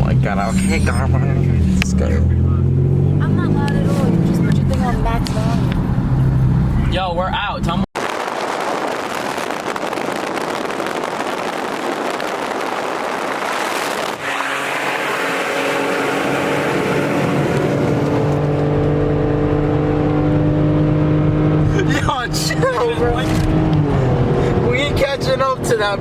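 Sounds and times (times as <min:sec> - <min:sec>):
car engine drone: 0:00.0 - 0:26.0
road and wind noise: 0:00.0 - 0:26.0.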